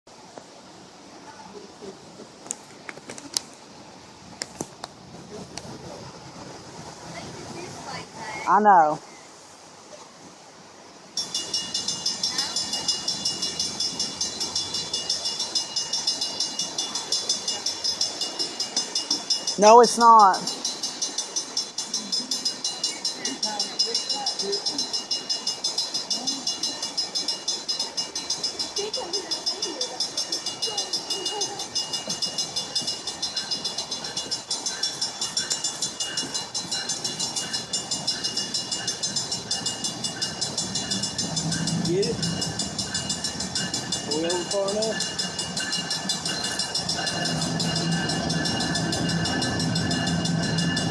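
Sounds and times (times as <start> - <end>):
locomotive: 11.2 - 50.9
railroad warning bell ringing: 11.2 - 50.9
rapid high-pitched pulsing: 11.2 - 50.9.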